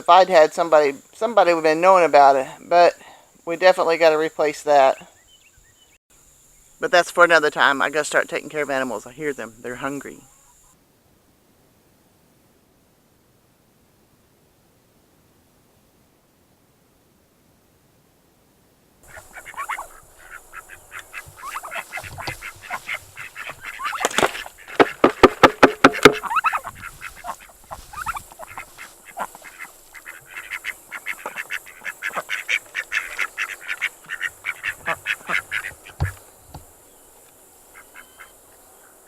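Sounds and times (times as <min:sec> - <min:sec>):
ducks quacking: 0:19.0 - 0:36.2, 0:37.7 - 0:38.4.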